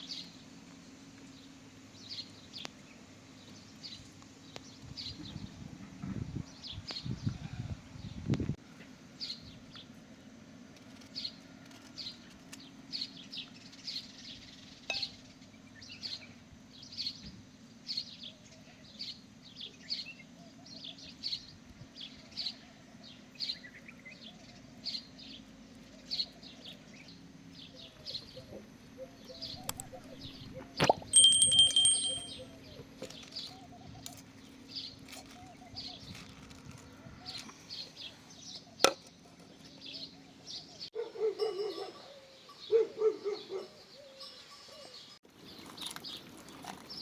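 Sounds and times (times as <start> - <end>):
small birds chirping: 12.0 - 40.9.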